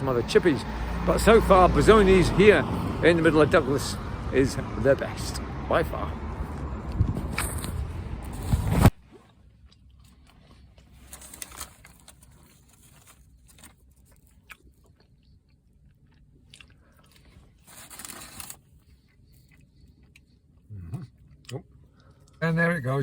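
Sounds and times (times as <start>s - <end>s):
person chewing chips: 9.2s - 22.4s.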